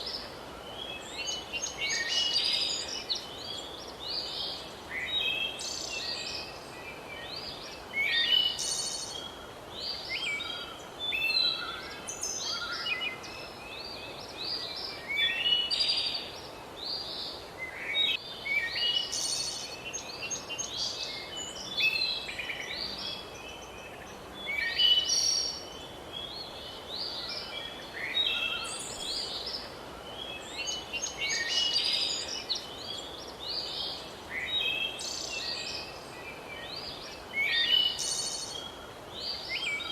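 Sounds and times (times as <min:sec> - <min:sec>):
faint background hiss: 0:00.0 - 0:39.9
songbirds singing and chirping: 0:00.0 - 0:39.9.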